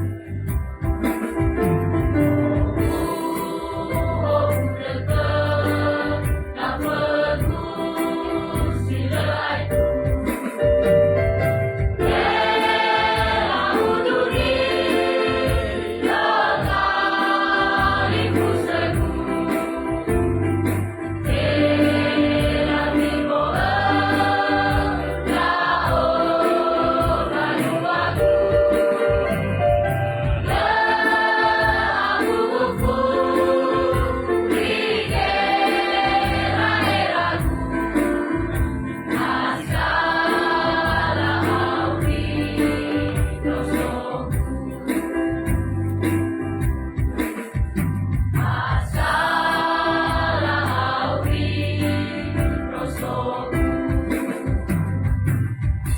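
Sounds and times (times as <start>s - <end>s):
choir singing: 2.8s - 9.9s, 12.0s - 29.4s, 30.4s - 38.2s, 39.0s - 45.2s, 48.4s - 54.4s.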